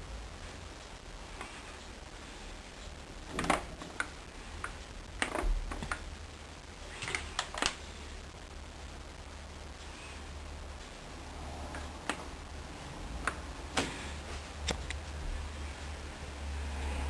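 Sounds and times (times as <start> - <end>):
low steady hum: 0.0 - 17.0
sharp clicks and light taps: 3.3 - 6.1, 11.7 - 12.3, 13.2 - 14.0, 14.6 - 15.1.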